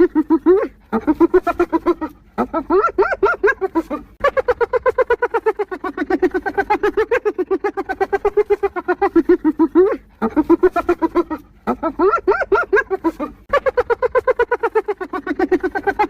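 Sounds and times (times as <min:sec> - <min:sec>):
hyena giggling: 0:00.0 - 0:16.0.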